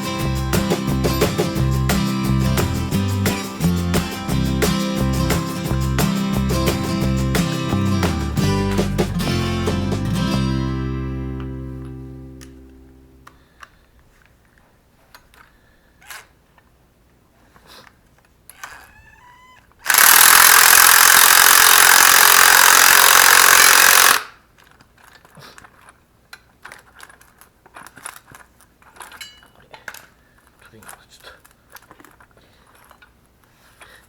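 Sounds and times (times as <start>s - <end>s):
power tool running: 19.9s - 24.3s
tools clicking and clattering: 19.9s - 33.1s.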